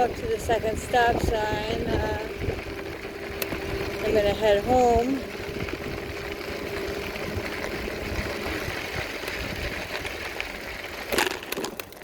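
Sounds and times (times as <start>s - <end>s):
small engine running: 0.0s - 12.0s
short clatter: 11.0s - 12.0s.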